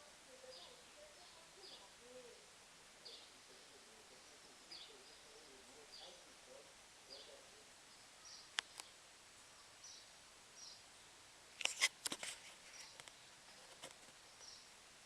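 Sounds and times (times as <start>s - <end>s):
small birds chirping: 0.0s - 14.9s
sharp clicks and snaps: 8.5s - 8.9s, 11.6s - 13.2s.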